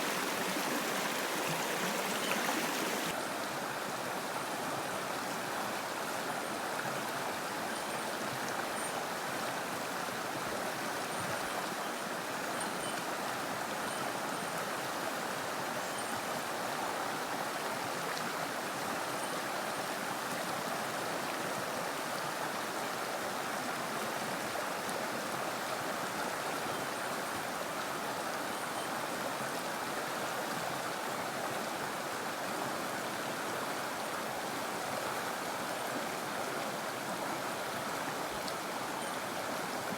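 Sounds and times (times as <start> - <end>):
stream rushing over rocks: 0.0 - 7.6.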